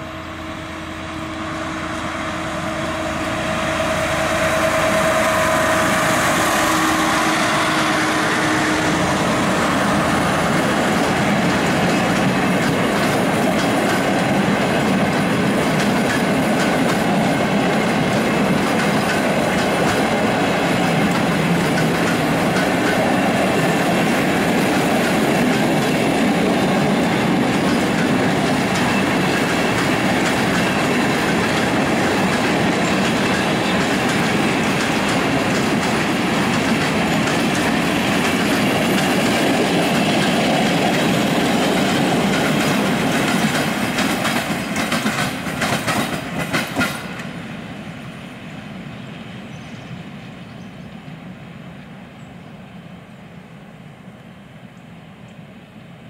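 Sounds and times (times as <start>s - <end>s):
freight train wheels rumbling: 0.0s - 56.0s
wheel clacks over rail joints: 10.5s - 47.3s.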